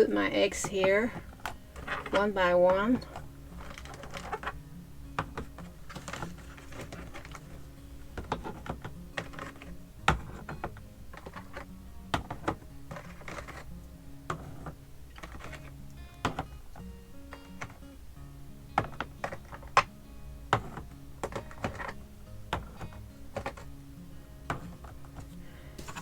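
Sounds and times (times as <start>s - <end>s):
eggs clicking into plastic tray: 0.5s - 4.6s, 5.2s - 17.9s, 18.8s - 23.8s, 24.4s - 26.0s.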